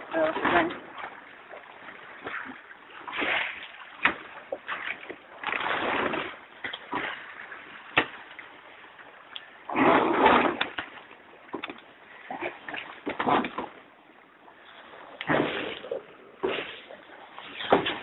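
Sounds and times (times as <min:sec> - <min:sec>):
water splashing against hull: 0:00.0 - 0:18.0.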